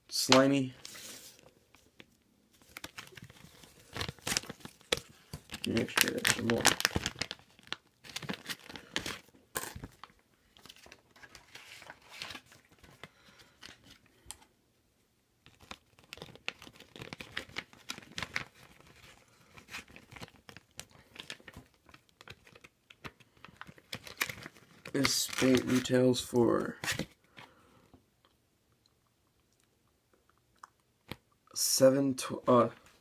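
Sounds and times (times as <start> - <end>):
plastic packaging crinkling: 0.9 - 14.0, 15.4 - 26.0.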